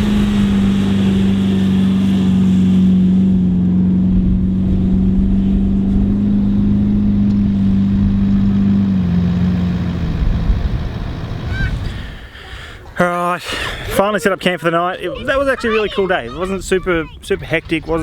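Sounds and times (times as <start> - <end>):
rushing noise: 0.0 - 7.2
off-road vehicle engine droning: 0.0 - 18.0.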